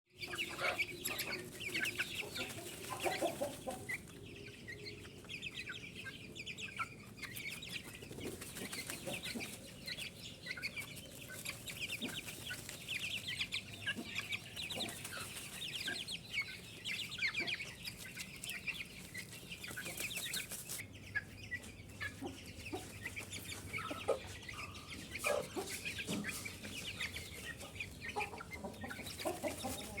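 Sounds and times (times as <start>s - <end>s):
chicks peeping: 0.1s - 30.0s.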